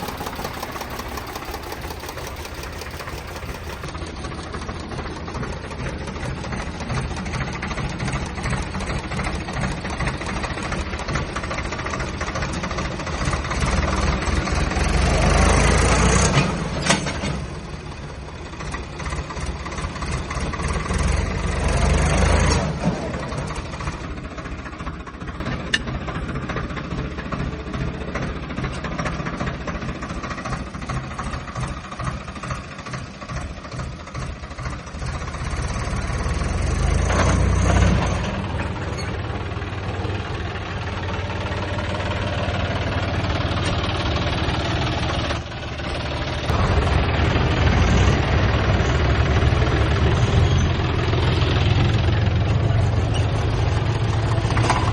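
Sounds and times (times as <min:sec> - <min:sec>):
diesel tractor engine revving: 0:00.0 - 0:54.9.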